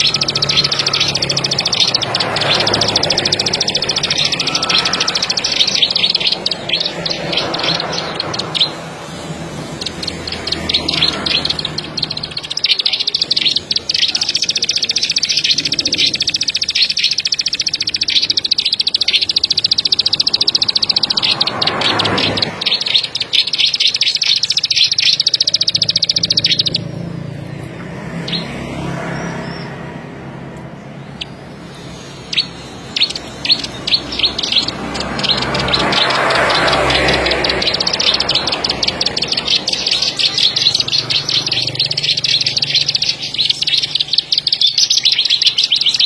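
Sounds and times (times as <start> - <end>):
bird clicking trill: 0.0 - 29.7, 30.6 - 46.0.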